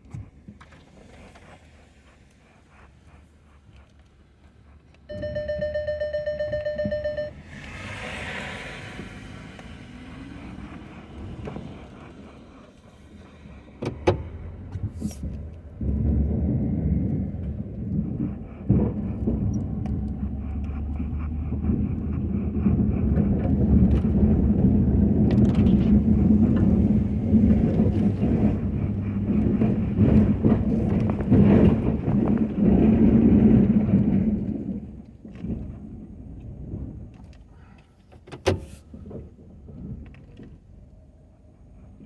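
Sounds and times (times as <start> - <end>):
pickup truck engine running: 0.7 - 37.0.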